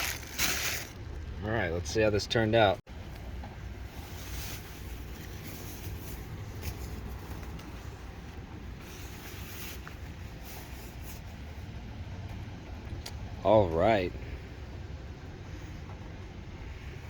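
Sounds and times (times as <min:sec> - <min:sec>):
packaging rustling and clicking: 0:00.0 - 0:01.0
low outdoor rumble: 0:00.0 - 0:17.0.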